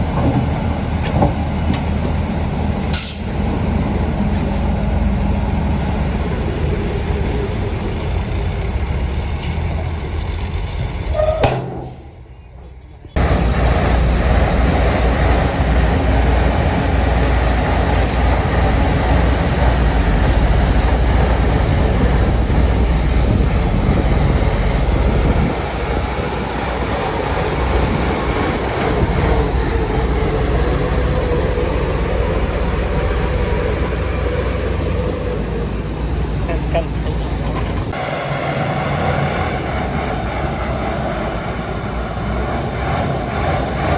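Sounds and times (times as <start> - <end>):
heavy diesel machinery rumbling: 0.0 - 43.9.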